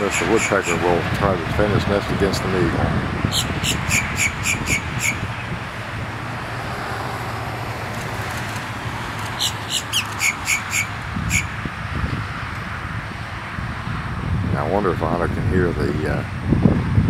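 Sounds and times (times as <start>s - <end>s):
bird calling repeated notes: 3.3s - 5.5s, 9.2s - 11.6s.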